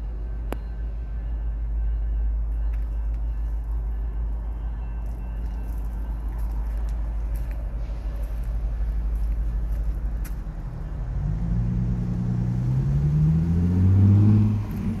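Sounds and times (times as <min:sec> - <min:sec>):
vehicle engine accelerating: 0:07.7 - 0:15.0.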